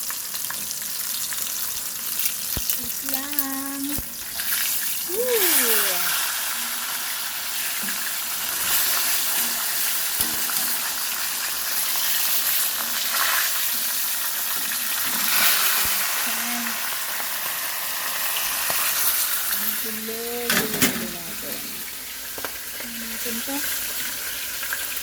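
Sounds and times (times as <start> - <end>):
fish sizzling in hot oil: 0.0 - 25.0
rising and falling voice: 5.1 - 6.2.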